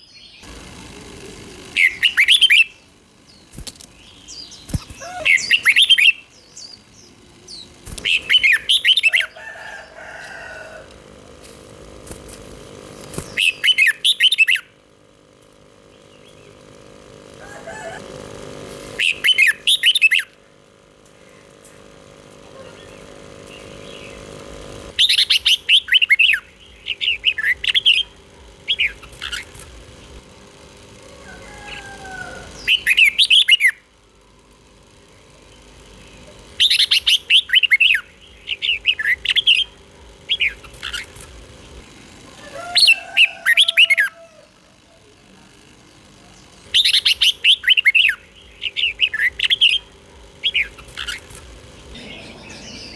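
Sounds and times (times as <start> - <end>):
faint steady hum: 0.0 - 52.9
bird warbling song: 1.6 - 11.0, 13.0 - 14.8, 19.0 - 20.3, 21.2 - 30.2, 31.1 - 33.9, 35.4 - 41.9, 46.3 - 52.9.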